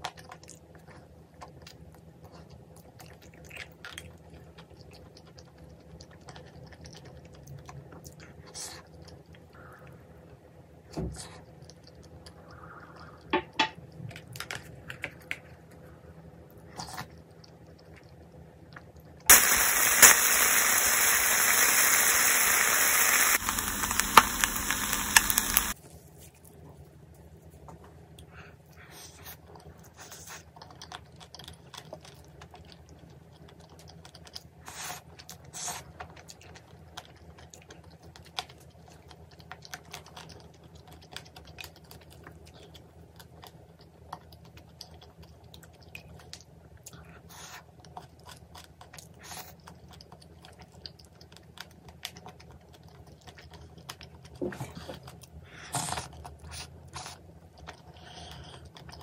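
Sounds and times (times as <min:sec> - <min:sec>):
chewing and biting: 0:00.0 - 0:09.7, 0:10.9 - 0:13.3, 0:13.9 - 0:19.4, 0:27.5 - 0:59.0
steady low hum: 0:15.5 - 0:25.8
crunchy bursts: 0:19.3 - 0:25.8.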